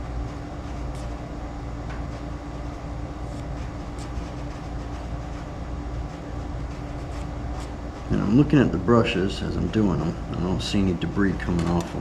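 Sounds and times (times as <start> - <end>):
low mechanical hum: 0.0 - 12.0
brushes scraping and clicking: 6.7 - 7.8.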